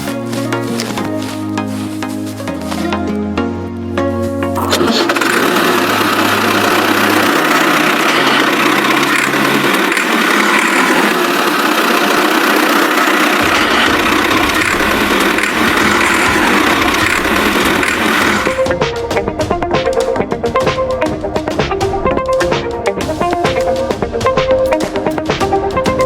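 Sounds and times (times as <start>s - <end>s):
small engine humming: 4.6s - 21.2s.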